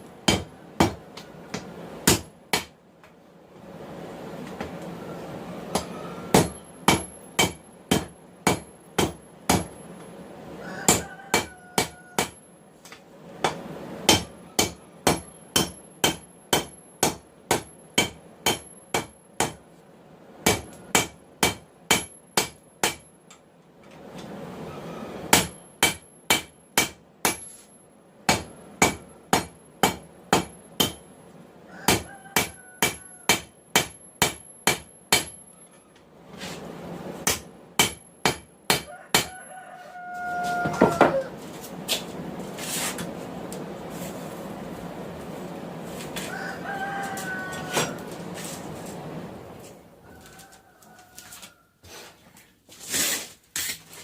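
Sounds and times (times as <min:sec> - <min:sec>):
hammer striking steel on anvil: 0:00.3 - 0:02.8, 0:05.7 - 0:09.9, 0:10.8 - 0:12.5, 0:13.4 - 0:19.6, 0:20.4 - 0:23.1, 0:25.3 - 0:27.7, 0:28.3 - 0:31.1, 0:31.9 - 0:35.6, 0:37.2 - 0:39.4.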